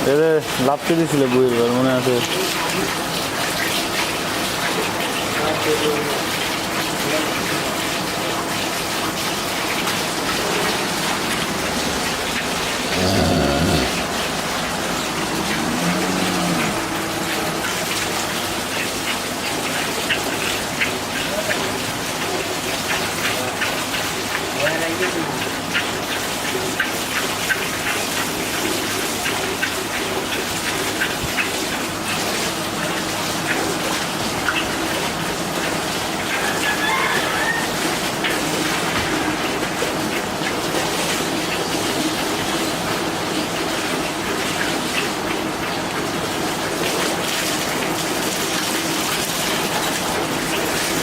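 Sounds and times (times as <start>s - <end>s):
heavy rain rushing: 5.5s - 20.1s
steady noisy hiss: 7.0s - 19.8s.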